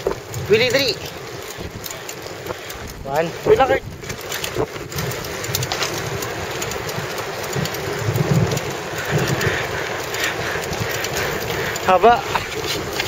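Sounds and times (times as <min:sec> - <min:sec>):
mountain bike rattling over rough ground: 0:00.0 - 0:13.0
wind on microphone: 0:00.0 - 0:13.0.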